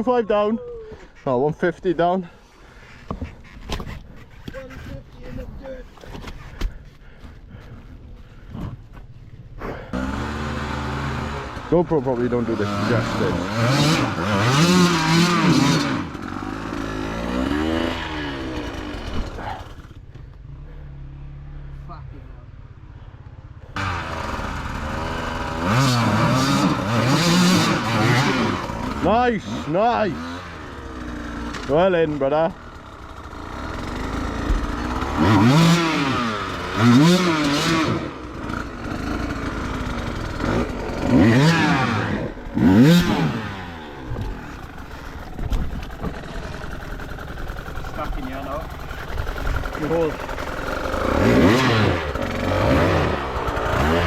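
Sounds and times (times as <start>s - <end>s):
motorcycle engine revving: 9.7s - 21.9s, 23.5s - 54.0s.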